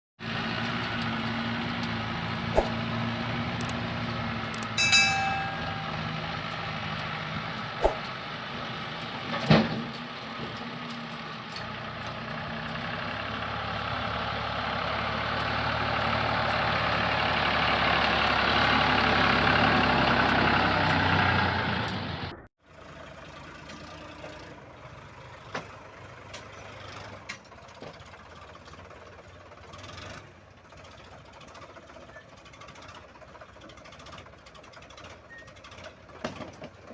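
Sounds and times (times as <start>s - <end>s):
clicks: 4.6s - 6.0s
diesel engine working hard: 6.0s - 36.2s.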